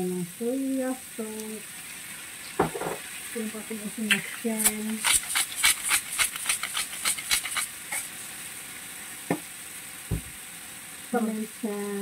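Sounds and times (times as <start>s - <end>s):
food sizzling in a wok: 0.0s - 12.0s
scraping stirring strokes: 4.1s - 8.2s
single knocks: 10.1s - 10.3s.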